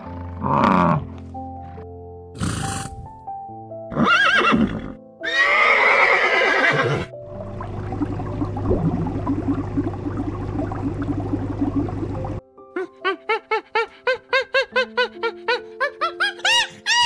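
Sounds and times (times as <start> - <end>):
soft background music: 0.0 - 17.0
horse whinnying: 3.9 - 7.1
low pulsing hum: 7.3 - 12.4.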